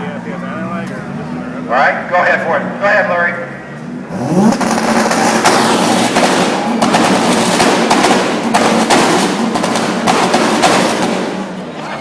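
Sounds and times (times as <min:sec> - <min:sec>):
car exhaust at high revs: 0:03.7 - 0:11.7.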